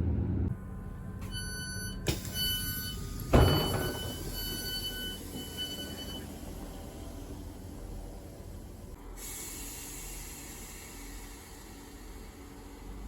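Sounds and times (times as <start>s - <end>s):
train door warning beeps: 1.2s - 7.3s
sliding doors opening with thud: 2.0s - 6.3s.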